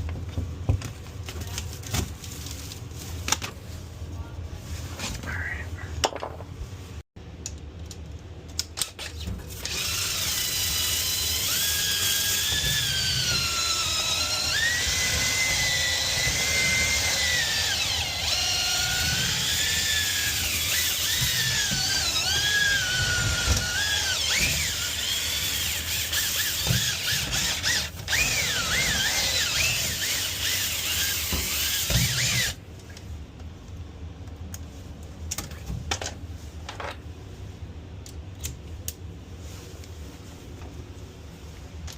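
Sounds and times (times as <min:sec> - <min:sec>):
power drill whine: 0:09.6 - 0:32.6.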